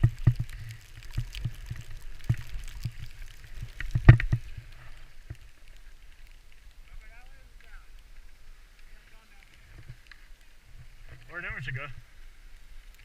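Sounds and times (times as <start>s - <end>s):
wind rumbling on microphone: 0.0s - 7.1s.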